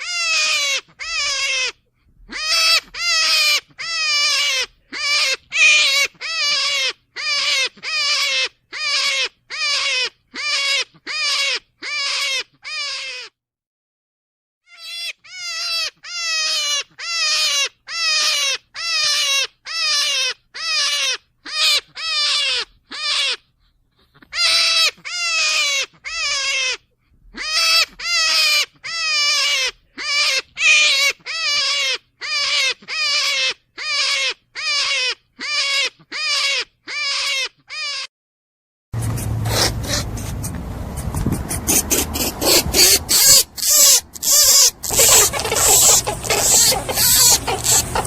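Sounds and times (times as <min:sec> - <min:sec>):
rabbit crying: 0:00.0 - 0:13.4, 0:14.7 - 0:38.1, 0:39.0 - 0:48.0
rasping scrape: 0:39.0 - 0:48.0.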